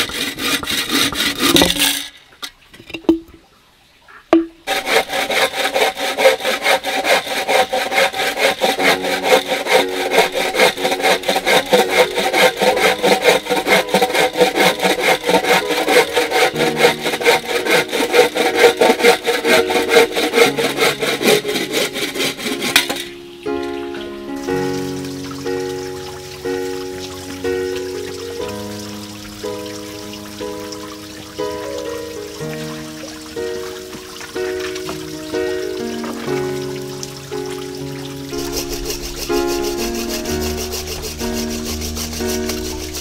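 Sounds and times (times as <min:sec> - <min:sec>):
hand saw cutting wood: 0:00.0 - 0:02.1, 0:04.7 - 0:23.2, 0:38.3 - 0:43.0
knocks: 0:04.3 - 0:04.7.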